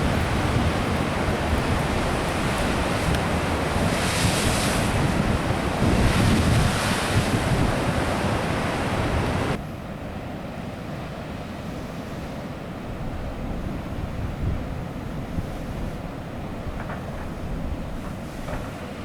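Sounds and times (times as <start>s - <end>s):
sea surf breaking: 0.0s - 9.6s
wind buffeting microphone: 0.0s - 9.6s, 12.9s - 19.0s.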